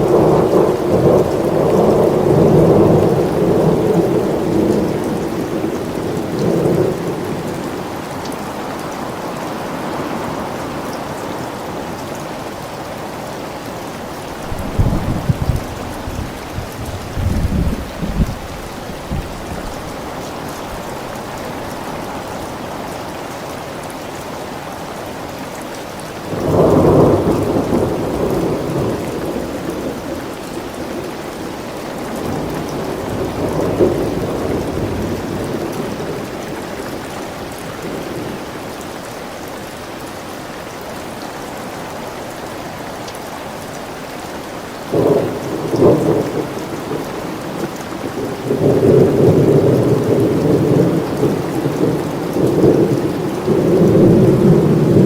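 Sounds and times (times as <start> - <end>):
heavy rain: 0.0 - 55.0
rolling thunder: 14.4 - 19.8.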